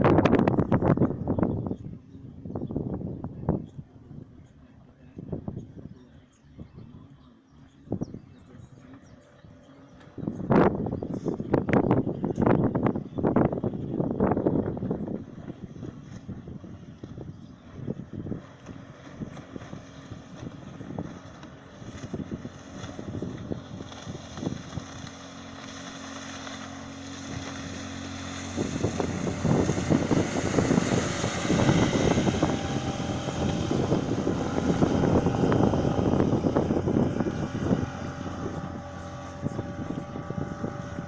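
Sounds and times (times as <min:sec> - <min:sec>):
outboard motor running: 0:00.0 - 0:41.0
wind buffeting microphone: 0:00.0 - 0:41.0
water rushing past hull: 0:13.4 - 0:41.0.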